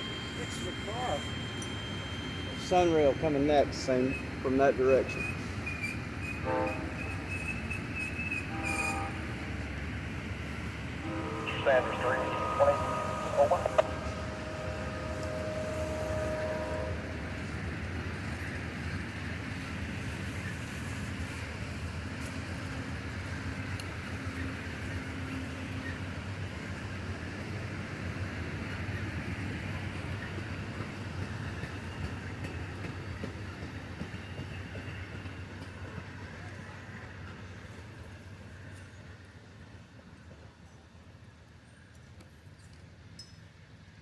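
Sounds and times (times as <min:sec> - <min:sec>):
train wheels rumbling on rails: 0:00.0 - 0:44.0
brief steady tone: 0:11.1 - 0:17.0.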